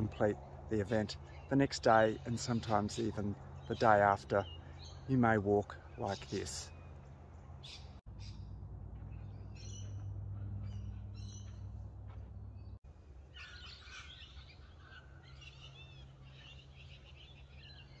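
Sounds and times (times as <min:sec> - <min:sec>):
wild birds chirping and calling: 0:00.0 - 0:18.0
steady low hum: 0:05.7 - 0:13.3.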